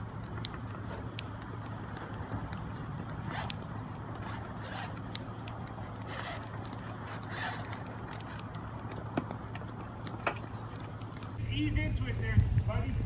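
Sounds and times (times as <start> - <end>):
light clicks and rustles: 0.0 - 11.4
vehicle engine idling: 0.0 - 13.0.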